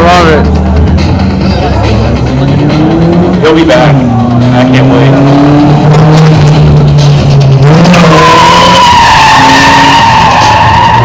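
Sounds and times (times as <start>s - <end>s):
car engine revving high: 0.4s - 11.0s
tire squeal: 7.6s - 11.0s.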